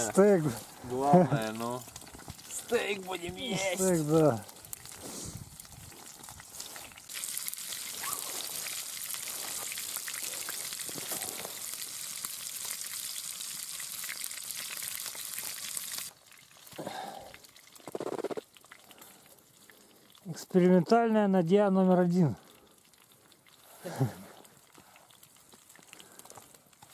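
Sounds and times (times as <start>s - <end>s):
steak sizzling in frying pan: 0.0s - 16.6s.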